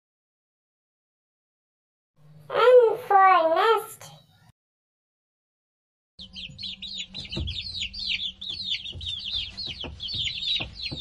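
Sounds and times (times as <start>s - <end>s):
baby birds chirping: 6.2s - 11.0s.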